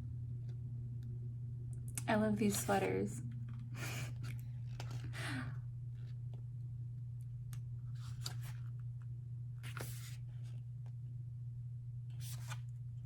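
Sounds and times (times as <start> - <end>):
steady low hum: 0.0 - 13.0
photobook pages turning: 4.2 - 5.1, 8.0 - 8.8, 9.6 - 10.5, 12.1 - 12.7.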